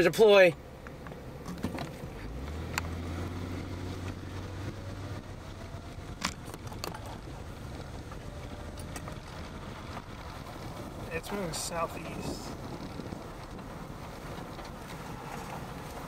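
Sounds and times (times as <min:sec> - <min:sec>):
car engine from inside cabin: 0:00.0 - 0:16.0
steady rushing noise: 0:07.2 - 0:16.0.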